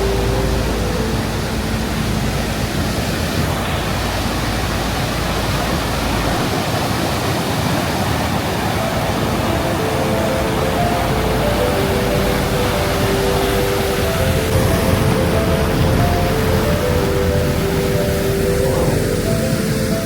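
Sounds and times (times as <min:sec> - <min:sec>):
waterfall rushing: 0:00.0 - 0:20.0
faint background music: 0:08.8 - 0:20.0.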